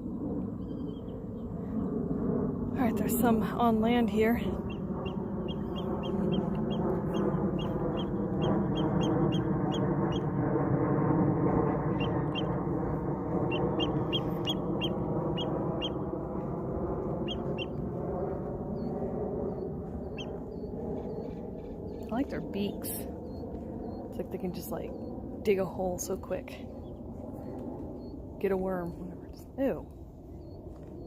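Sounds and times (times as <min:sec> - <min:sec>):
birds chirping: 0:02.8 - 0:10.3, 0:11.8 - 0:16.5, 0:17.1 - 0:31.0.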